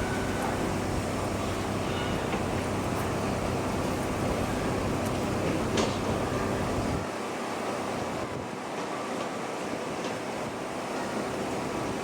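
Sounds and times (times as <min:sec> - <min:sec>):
wind hiss on microphone: 0:00.0 - 0:08.8
hushed outdoor crowd: 0:00.0 - 0:12.0.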